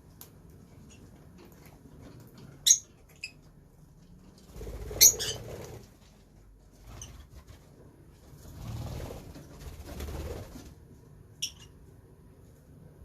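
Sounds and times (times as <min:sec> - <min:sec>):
lovebirds chirping: 0:02.6 - 0:03.5, 0:04.8 - 0:05.5.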